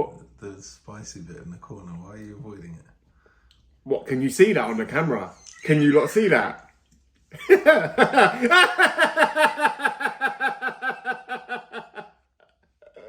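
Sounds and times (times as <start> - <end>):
person laughing: 7.4 - 12.0.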